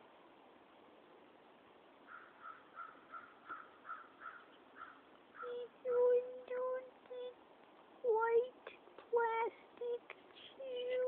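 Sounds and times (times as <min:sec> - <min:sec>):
bird calling: 0:02.1 - 0:06.2.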